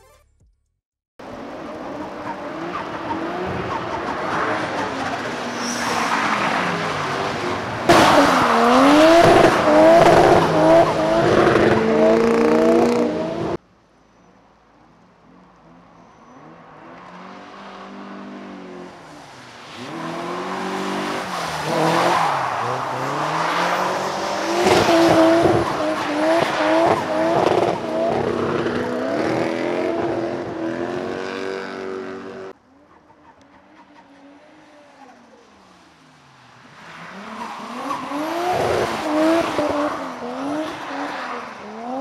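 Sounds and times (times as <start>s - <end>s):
car engine revving: 1.2s - 13.6s, 19.8s - 32.6s, 37.1s - 42.0s.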